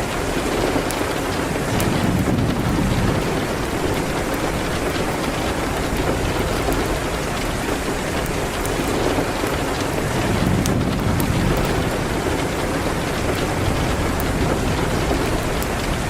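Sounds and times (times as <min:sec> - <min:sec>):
rain pattering on a window: 0:00.0 - 0:16.0
wood fire crackling: 0:00.0 - 0:16.0.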